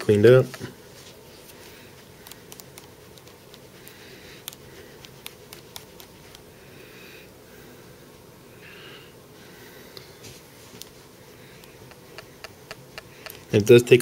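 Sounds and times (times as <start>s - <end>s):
small clicks and taps: 2.2s - 6.4s, 11.6s - 13.5s
cleaning pad rubbing touchscreen: 4.6s - 6.6s.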